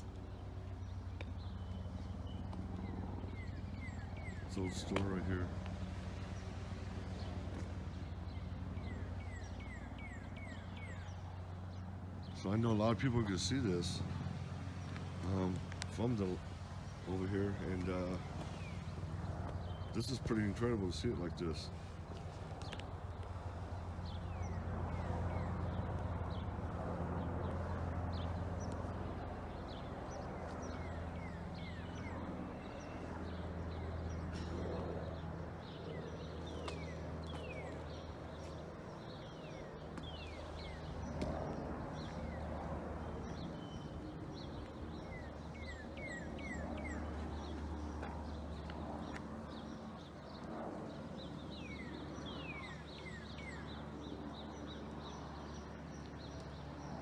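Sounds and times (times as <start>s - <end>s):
distant helicopter drone: 0.0s - 57.0s
small birds chirping: 0.0s - 57.0s.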